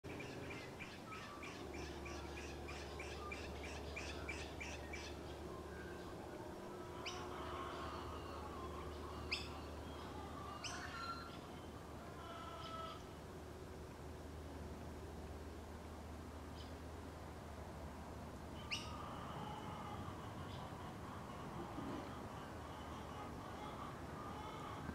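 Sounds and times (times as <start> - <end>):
sharp bird calls: 0.1 - 11.6, 18.6 - 21.2
birds chirping: 0.1 - 13.2.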